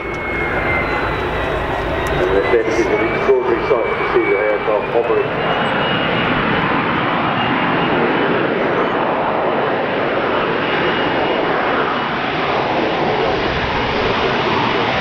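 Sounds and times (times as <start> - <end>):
faint high whine: 0.0 - 8.0
jet engine roaring: 0.0 - 15.0.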